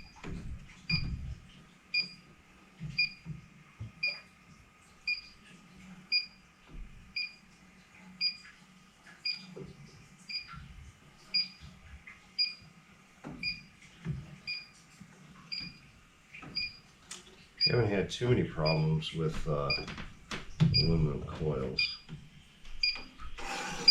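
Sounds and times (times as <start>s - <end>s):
leak detector beeping: 1.9s - 2.2s, 3.0s - 3.2s, 5.1s - 5.3s, 6.1s - 6.4s, 7.2s - 7.4s, 11.4s - 11.6s, 12.4s - 12.7s, 14.5s - 14.7s, 16.6s - 16.8s, 18.6s - 18.9s, 21.8s - 22.0s, 22.8s - 23.9s.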